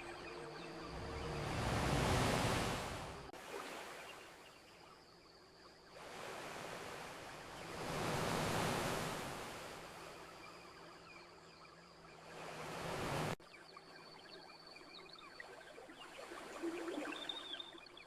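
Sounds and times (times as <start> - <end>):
ocean waves breaking on shore: 0.0 - 4.8, 5.9 - 10.5, 12.0 - 13.4.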